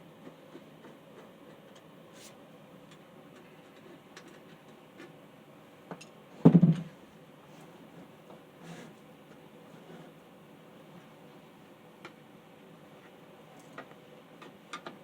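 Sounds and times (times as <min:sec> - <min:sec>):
loud knock: 0:06.4 - 0:06.9.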